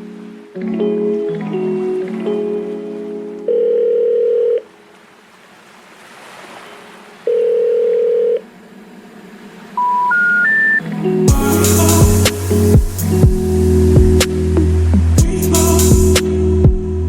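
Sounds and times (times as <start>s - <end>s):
music: 0.0s - 3.5s, 10.7s - 17.0s
short rising beeps: 9.8s - 10.8s
long electronic beeps: 9.8s - 14.8s.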